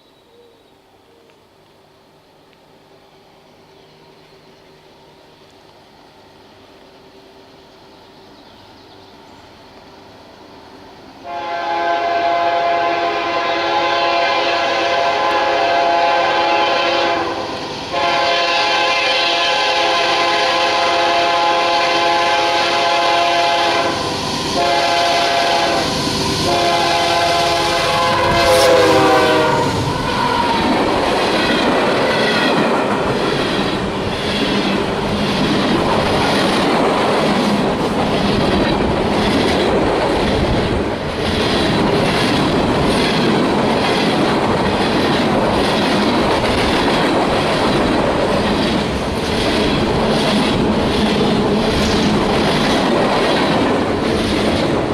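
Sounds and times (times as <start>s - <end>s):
locomotive horn blasts: 11.2s - 30.6s.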